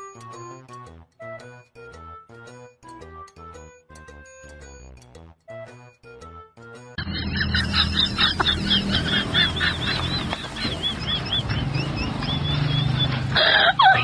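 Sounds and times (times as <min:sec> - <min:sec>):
music: 0:00.0 - 0:13.0.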